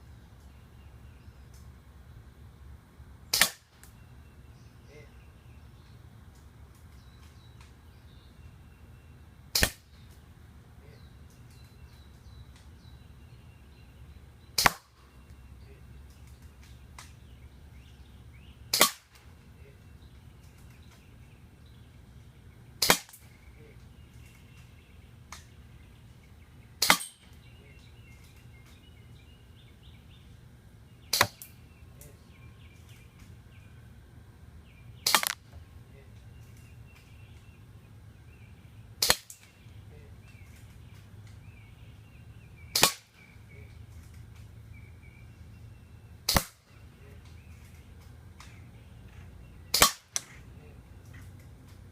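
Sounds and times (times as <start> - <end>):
airsoft rifle shots: 3.3 - 3.7, 9.5 - 9.8, 14.6 - 15.0, 18.7 - 19.2, 22.8 - 23.2, 26.8 - 27.2, 31.1 - 31.4, 35.0 - 35.4, 39.0 - 39.4, 42.7 - 43.2, 46.3 - 46.6, 49.7 - 50.4.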